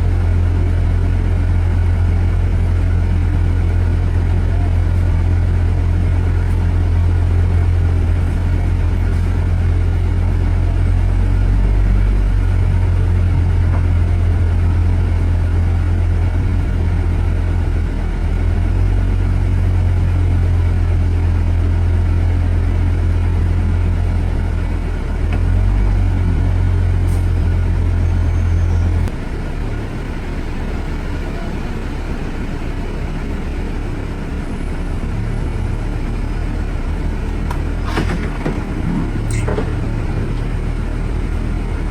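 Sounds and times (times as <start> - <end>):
motor vehicle and road rumble: 0.0 - 41.9.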